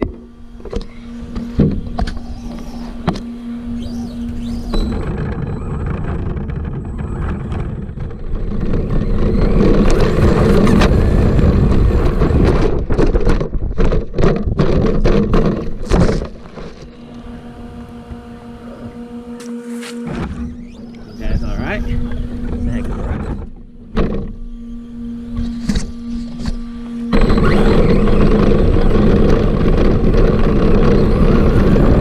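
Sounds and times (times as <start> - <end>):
wind buffeting: 0.0 - 19.4, 20.1 - 32.0
drivetrain and tyre rumble: 0.0 - 32.0
steady electric whine: 0.0 - 32.0
knocks and rattles from bumps: 4.6 - 17.0, 21.9 - 24.4.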